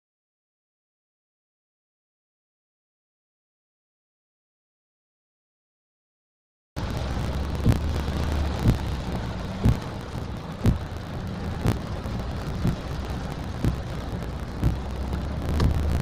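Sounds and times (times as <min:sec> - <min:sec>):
heavy rain: 0:06.8 - 0:16.0
low vehicle rumble: 0:06.8 - 0:16.0.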